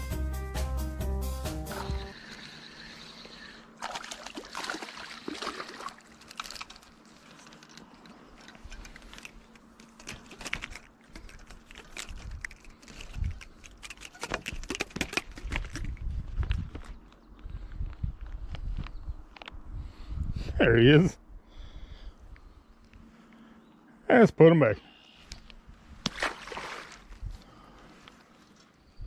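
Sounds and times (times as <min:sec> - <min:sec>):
clicks and rustling: 0:06.0 - 0:16.0.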